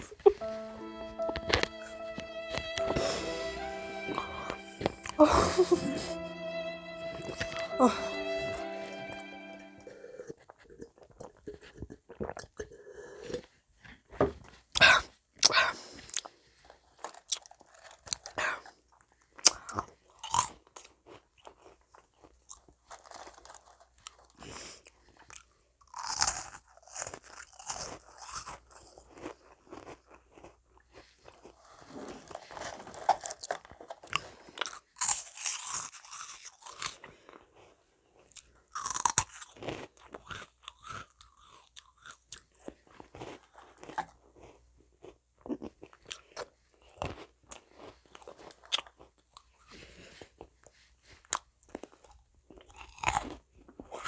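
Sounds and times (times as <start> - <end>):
meringue cookies crunching: 17.0 - 18.6, 19.5 - 24.4, 25.3 - 50.6.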